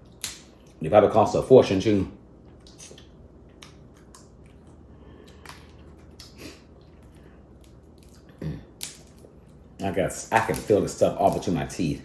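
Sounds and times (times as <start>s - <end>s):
person chewing: 2.4s - 9.7s.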